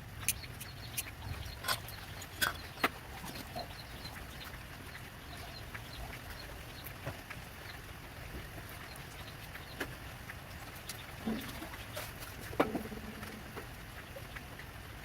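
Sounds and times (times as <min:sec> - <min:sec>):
low steady background noise: 0:00.0 - 0:15.0.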